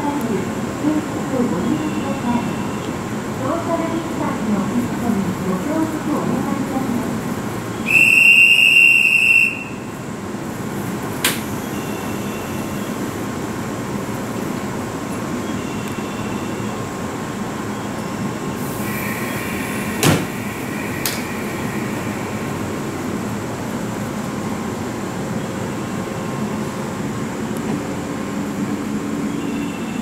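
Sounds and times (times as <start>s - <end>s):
electric train humming: 0.0s - 30.0s
shrill whistle blast: 7.8s - 9.9s.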